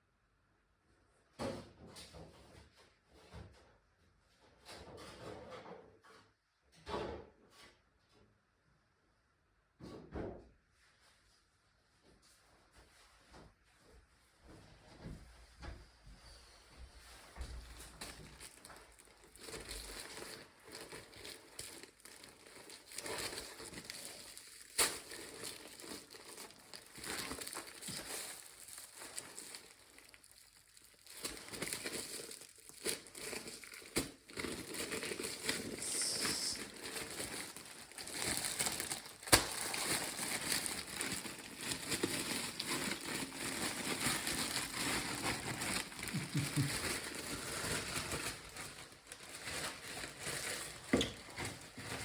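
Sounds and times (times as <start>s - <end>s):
crinkling and rustling: 17.0s - 52.0s.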